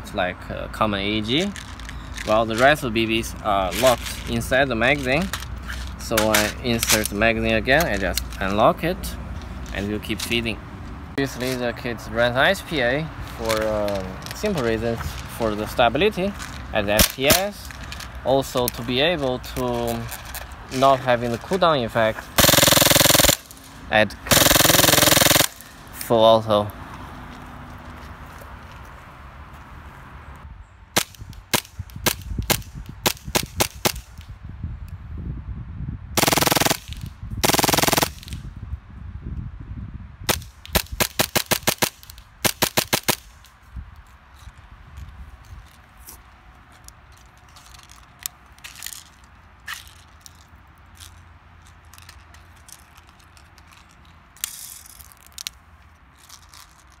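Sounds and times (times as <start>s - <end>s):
airsoft pistol firing: 22.4s - 23.5s, 24.3s - 25.6s, 36.2s - 38.3s.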